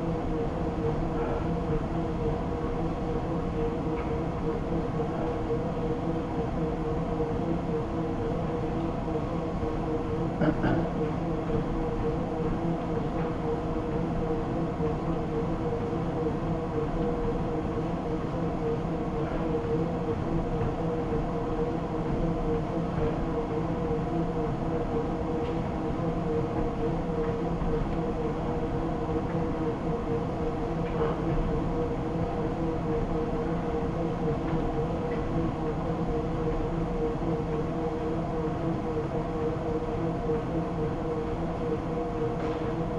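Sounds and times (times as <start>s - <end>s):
treadmill motor and belt hum: 0.0s - 42.9s.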